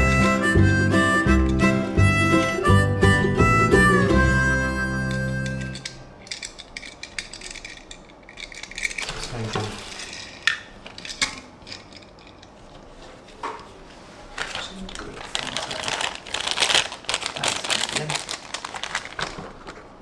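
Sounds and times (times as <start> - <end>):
background music: 0.0 - 6.0
toy car handling clicks and rattles: 5.5 - 12.6.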